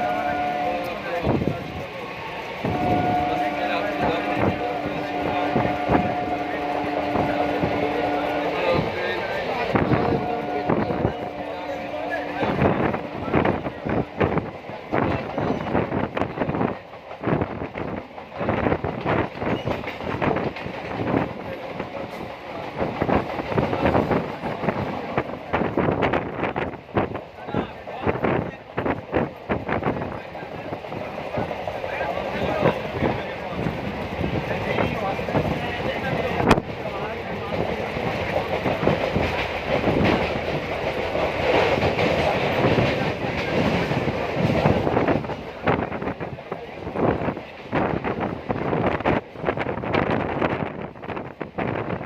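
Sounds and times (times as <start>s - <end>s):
train wheels clattering over rail joints: 14.2s - 27.3s, 36.2s - 50.7s.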